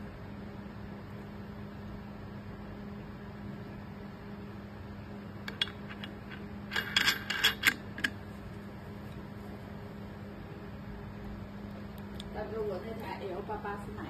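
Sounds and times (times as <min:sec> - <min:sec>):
steady low hum: 0:00.0 - 0:14.0
clicks and clatter of grinder parts: 0:05.5 - 0:08.2.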